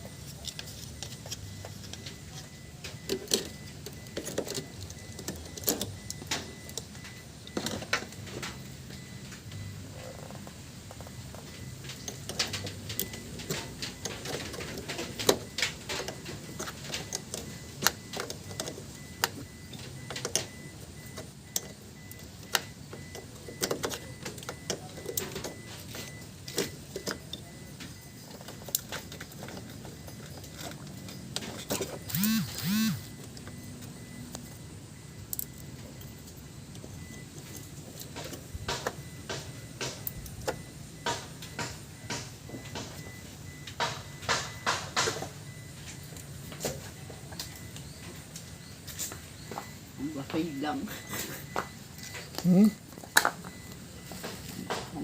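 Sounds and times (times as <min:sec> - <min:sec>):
hand tools tapping on metal: 0:10.3 - 0:33.5, 0:35.3 - 0:55.0.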